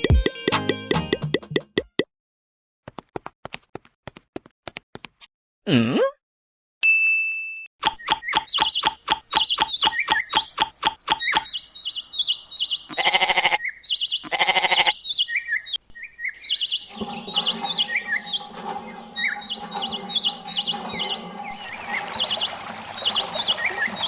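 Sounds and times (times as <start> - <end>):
rapid clicking: 7.8 - 11.5
small birds chirping: 7.8 - 24.0
sheep or goat bleating: 12.9 - 15.0.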